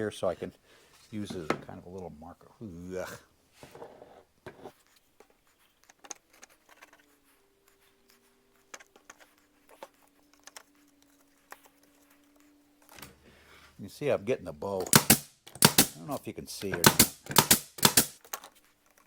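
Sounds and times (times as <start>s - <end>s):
wooden boards clicking and tapping: 14.8s - 16.0s, 16.6s - 18.4s.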